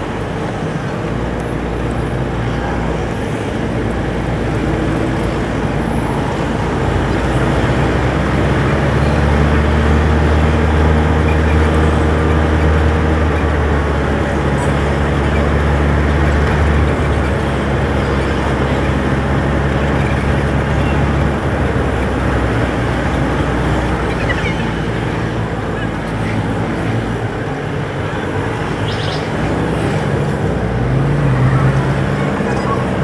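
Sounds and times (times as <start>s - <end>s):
road noise: 0.0s - 33.0s
truck engine droning: 0.0s - 33.0s.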